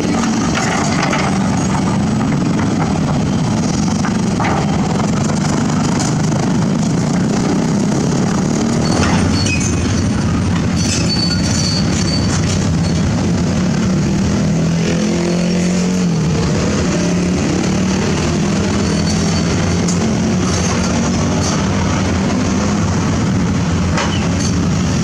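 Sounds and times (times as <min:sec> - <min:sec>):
excavator diesel engine running: 0:00.0 - 0:14.4
brief high squeak: 0:08.8 - 0:10.2, 0:10.8 - 0:13.0.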